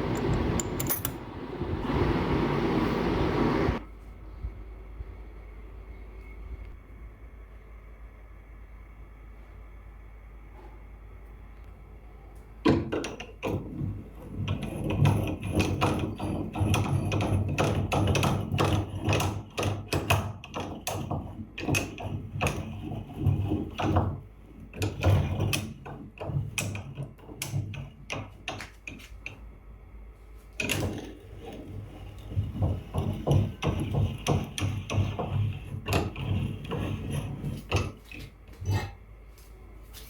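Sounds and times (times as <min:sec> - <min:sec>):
vise parts knocking and clunking: 0:00.0 - 0:01.5, 0:12.6 - 0:29.4, 0:30.6 - 0:38.9.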